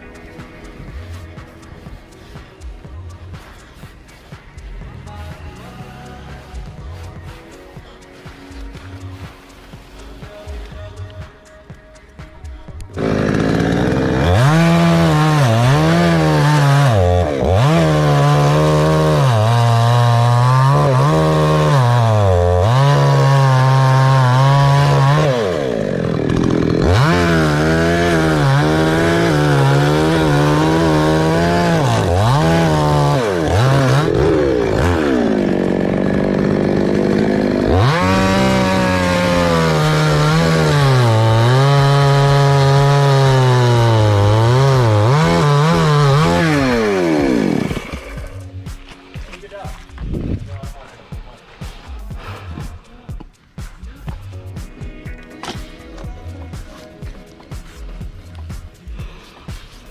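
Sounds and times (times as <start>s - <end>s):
chainsaw cutting a tree: 12.8s - 50.5s.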